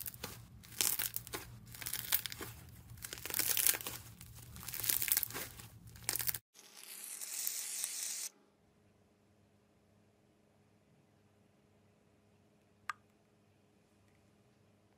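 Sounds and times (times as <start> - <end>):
slime crackling and popping: 0.0 - 7.5.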